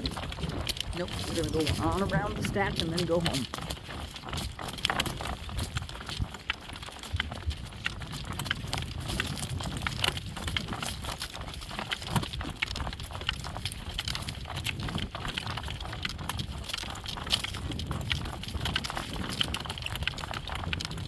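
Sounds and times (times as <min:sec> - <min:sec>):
steady low rumble: 0:00.0 - 0:03.6
horse hooves clip-clopping: 0:00.0 - 0:21.0.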